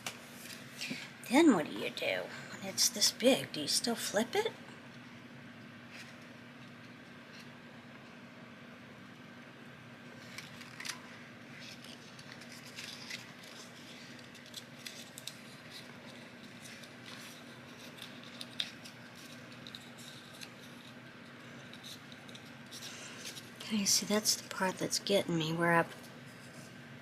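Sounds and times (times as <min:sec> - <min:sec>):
faint steady hum: 0:00.0 - 0:27.0
paper crackling as it is folded: 0:10.1 - 0:23.7.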